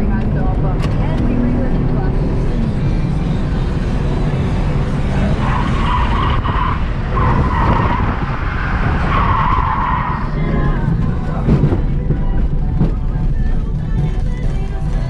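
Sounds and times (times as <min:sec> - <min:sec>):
car engine running hard: 0:00.0 - 0:15.0
tyres squealing: 0:05.0 - 0:11.5.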